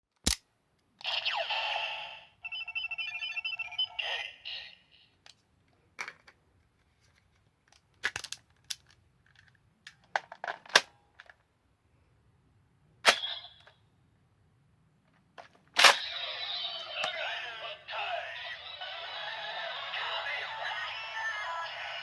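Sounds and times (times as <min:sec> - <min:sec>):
plastic toy clicks and snaps: 0:00.2 - 0:00.4, 0:07.7 - 0:11.4
toy electronic sound: 0:01.0 - 0:05.1, 0:15.9 - 0:22.0.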